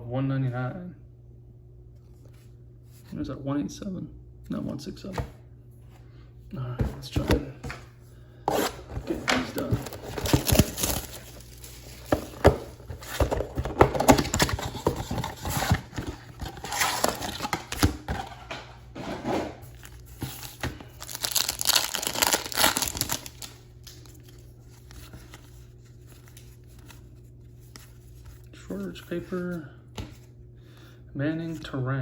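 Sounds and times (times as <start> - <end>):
wrappers tearing and crinkling: 8.5 - 13.2, 14.1 - 18.0, 19.7 - 25.0.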